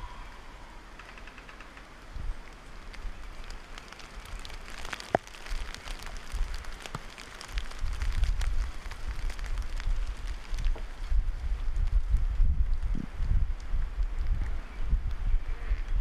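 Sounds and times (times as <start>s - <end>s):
frozen precipitation ticking on clothing: 0.9s - 16.0s
wind buffeting microphone: 5.4s - 16.0s.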